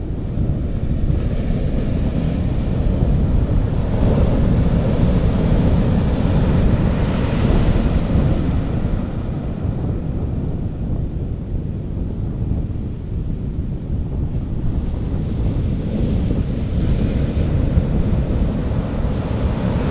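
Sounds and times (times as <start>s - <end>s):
wind rumble on microphone: 0.0s - 19.9s
sea waves breaking on beach: 1.6s - 9.4s, 14.6s - 19.9s.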